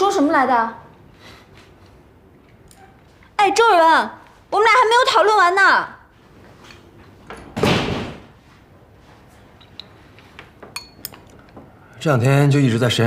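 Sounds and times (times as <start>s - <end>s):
door shutting: 7.2s - 8.3s.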